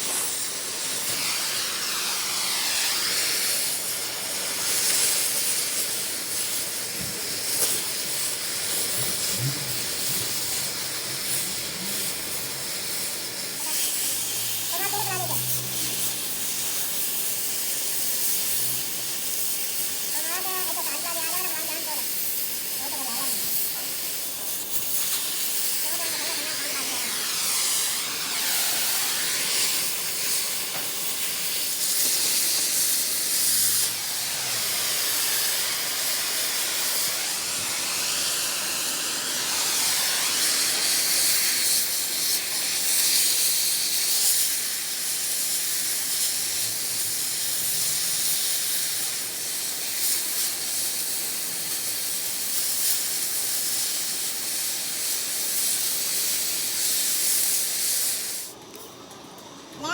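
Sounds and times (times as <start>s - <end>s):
loud steady hiss: 0.0s - 59.9s.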